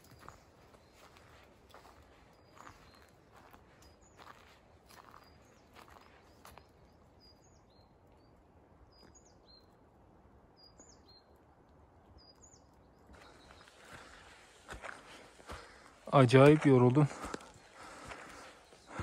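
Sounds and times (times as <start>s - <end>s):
small bird chirping: 0.0s - 9.8s
soft footsteps on trail: 0.0s - 9.9s, 10.6s - 19.0s.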